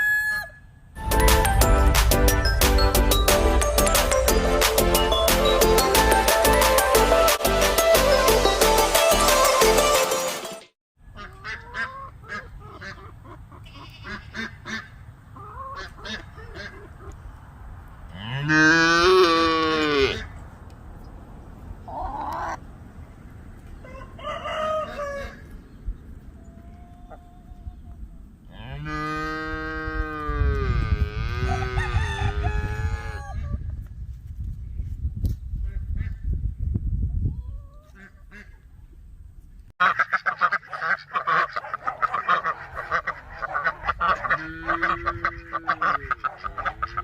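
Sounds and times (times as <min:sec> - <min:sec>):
background music: 0:01.0 - 0:10.7
poultry calling: 0:11.1 - 0:17.2, 0:21.8 - 0:22.6, 0:39.8 - 0:47.0
cow mooing: 0:18.1 - 0:20.2.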